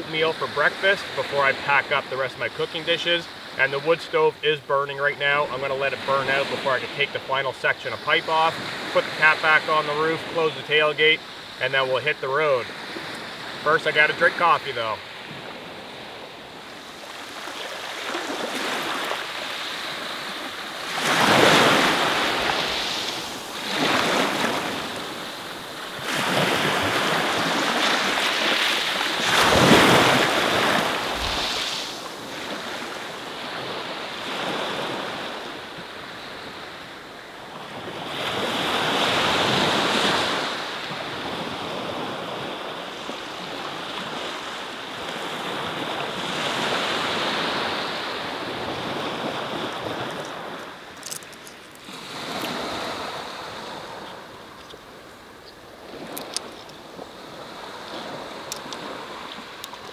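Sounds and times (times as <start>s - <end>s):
waves breaking on pebble beach: 0.0s - 36.8s, 37.6s - 54.4s, 55.7s - 59.9s
wind on microphone: 21.0s - 32.7s.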